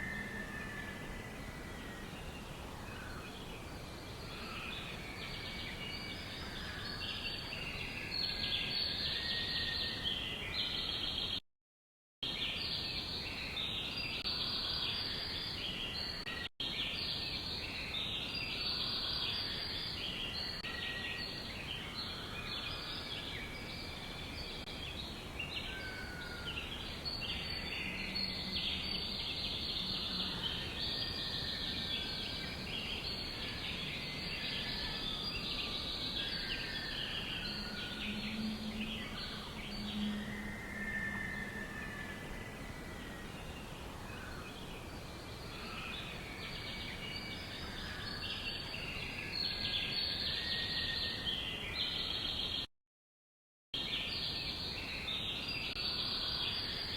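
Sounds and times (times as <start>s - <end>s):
steady background hiss: 12.3s - 52.5s.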